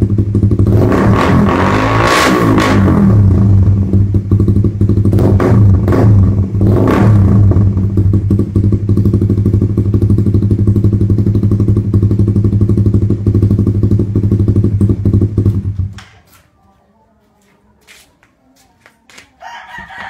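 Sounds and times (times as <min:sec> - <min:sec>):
motorcycle engine idling: 0:00.0 - 0:00.7, 0:03.4 - 0:06.6, 0:07.4 - 0:16.1
motorcycle engine throttle blips: 0:02.8 - 0:16.3.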